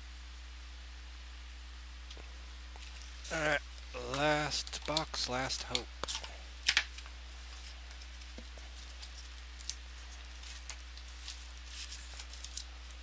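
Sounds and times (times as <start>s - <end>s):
steady low hum: 0.0s - 13.0s
card packs clicking and rustling: 4.0s - 7.1s, 8.0s - 13.0s.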